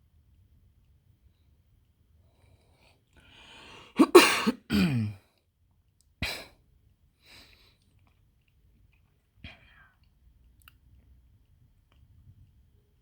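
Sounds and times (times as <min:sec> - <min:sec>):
person breathing in: 0:03.2 - 0:04.0
person coughing: 0:03.9 - 0:05.2.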